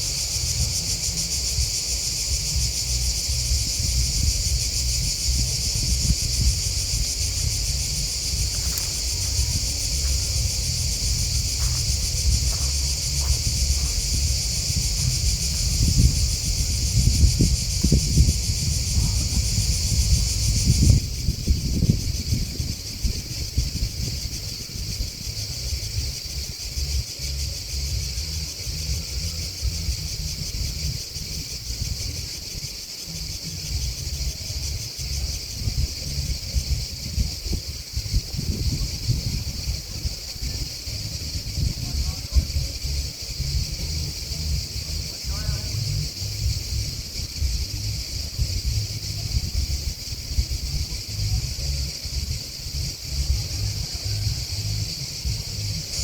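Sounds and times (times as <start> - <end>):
grasshoppers and crickets chirping: 0.0 - 56.0
low rumble: 0.1 - 22.0.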